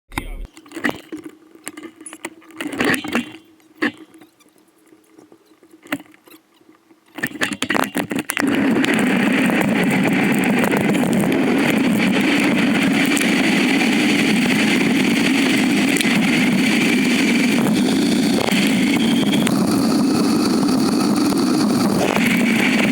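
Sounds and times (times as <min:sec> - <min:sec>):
motorcycle engine running: 0:08.4 - 0:22.9.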